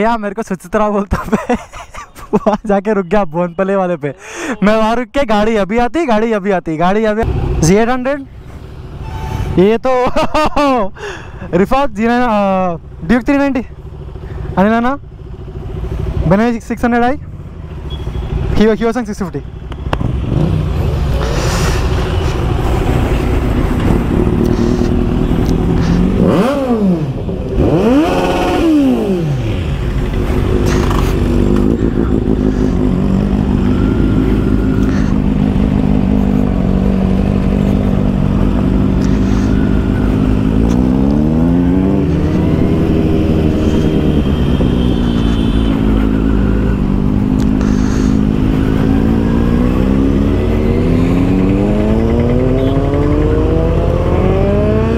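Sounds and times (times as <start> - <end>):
motorcycle engine revving: 19.6 - 54.9.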